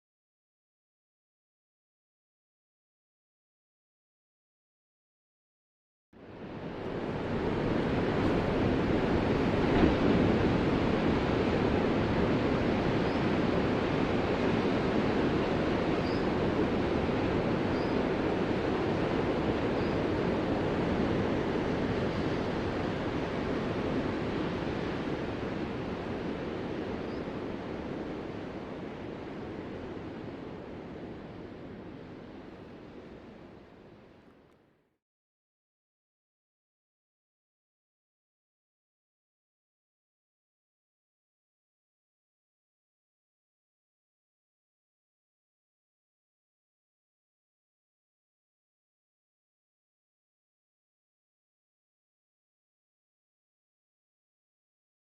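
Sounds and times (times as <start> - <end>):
ocean waves breaking: 6.3 - 33.5.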